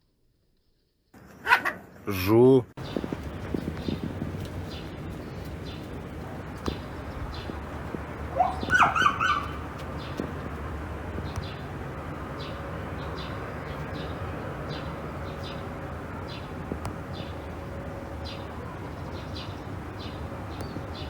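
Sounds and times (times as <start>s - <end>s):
high animal call: 8.3s - 9.7s.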